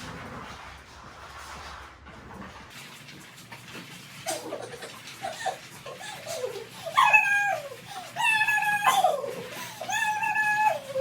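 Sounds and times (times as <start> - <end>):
dog whining: 5.2 - 11.0.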